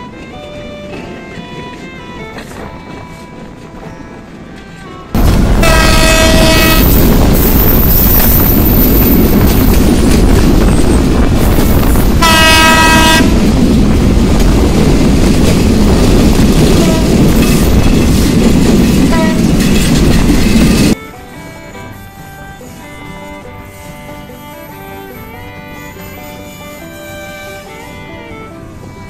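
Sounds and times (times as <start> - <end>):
passenger train rumbling: 0.0 - 29.0
train horn blasts: 4.5 - 9.1, 11.4 - 13.4, 16.7 - 17.6, 19.1 - 19.8, 21.0 - 28.9
wind noise: 5.1 - 21.0.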